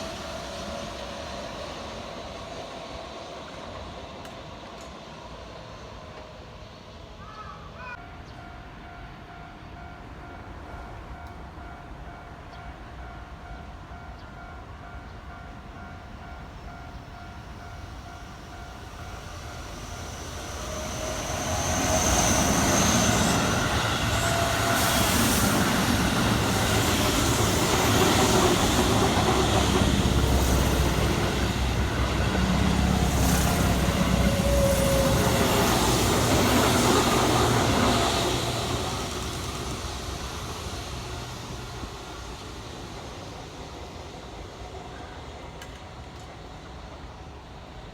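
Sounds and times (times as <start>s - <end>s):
electric train passing: 0.0s - 47.9s
train wheels clacking: 18.1s - 43.9s.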